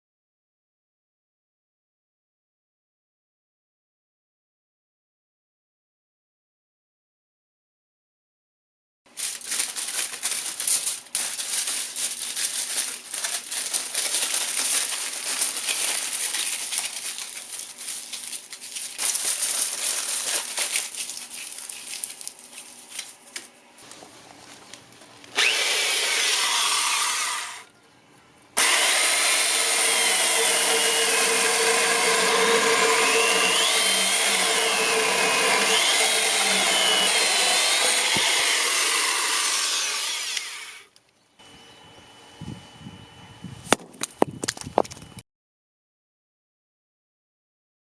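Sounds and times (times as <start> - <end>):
saw cutting firewood: 25.2 - 27.7, 28.6 - 40.9.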